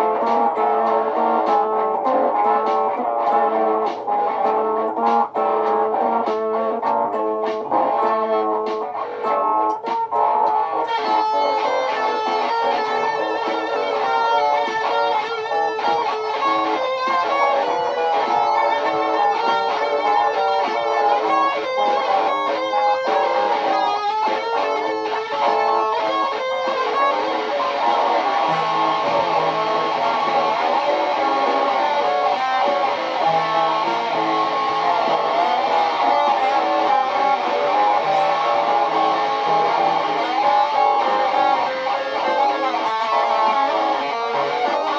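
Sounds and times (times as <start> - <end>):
looped electric guitars: 0.0 - 44.9
low bass notes: 27.8 - 41.5.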